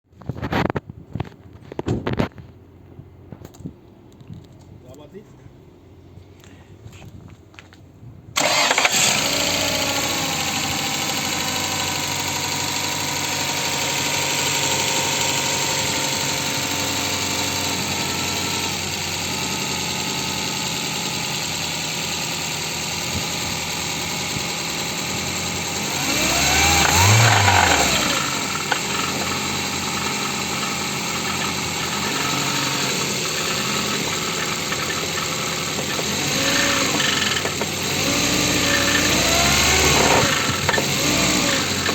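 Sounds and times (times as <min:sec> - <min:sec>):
car engine starting: 0:08.3 - 0:41.9
engine revving: 0:08.4 - 0:41.9
engine idling with a knock: 0:33.8 - 0:36.2, 0:36.9 - 0:37.8.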